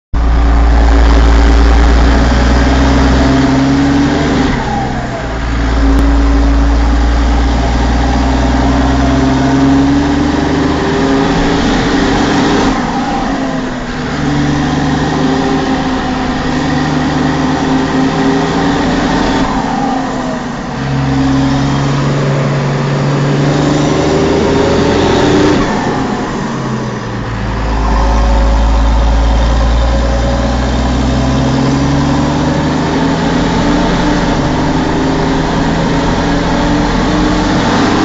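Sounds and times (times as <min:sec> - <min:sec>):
tractor diesel engine running: 0:00.1 - 0:38.0.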